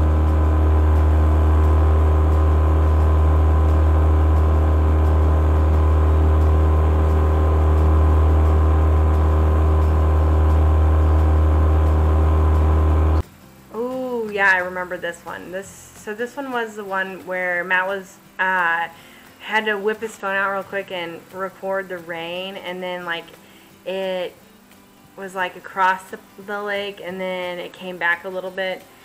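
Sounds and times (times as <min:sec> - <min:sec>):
loud low drone: 0:00.0 - 0:13.2.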